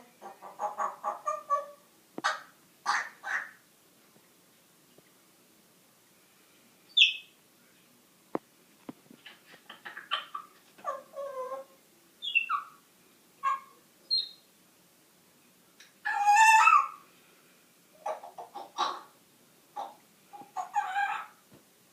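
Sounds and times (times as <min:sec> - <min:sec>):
parrot calls: 0:00.2 - 0:03.6, 0:09.2 - 0:12.8, 0:13.4 - 0:14.5, 0:16.0 - 0:17.0, 0:18.0 - 0:19.2, 0:19.8 - 0:21.4
parrot chattering: 0:00.2 - 0:03.6, 0:09.2 - 0:12.8, 0:13.4 - 0:14.4, 0:16.0 - 0:17.0, 0:18.0 - 0:19.2, 0:19.8 - 0:21.4
parrot harsh call: 0:00.5 - 0:03.6, 0:13.4 - 0:14.4, 0:16.0 - 0:17.0, 0:19.8 - 0:21.4
parrot whistle-like calls: 0:12.2 - 0:12.8, 0:13.4 - 0:14.5.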